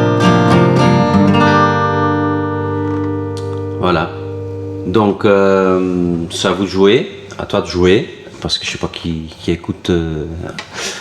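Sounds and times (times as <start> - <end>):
acoustic guitar strumming: 0.0 - 7.4.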